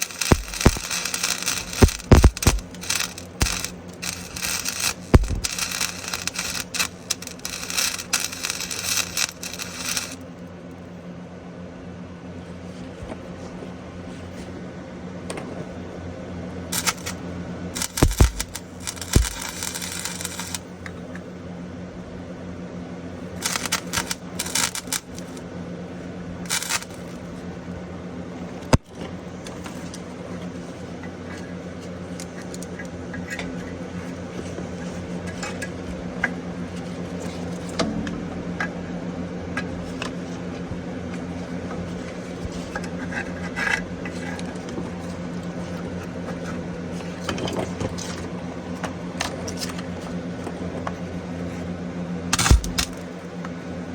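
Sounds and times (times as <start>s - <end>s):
welding arc crackling: 0.0s - 10.2s, 16.7s - 20.7s, 23.3s - 25.4s, 26.5s - 27.4s, 52.4s - 53.0s
steady electrical hum: 0.0s - 13.2s, 13.8s - 53.9s
ticks: 0.1s - 10.2s, 17.8s - 20.6s
sharp click: 0.2s - 10.2s, 17.8s - 20.6s, 52.4s - 53.0s.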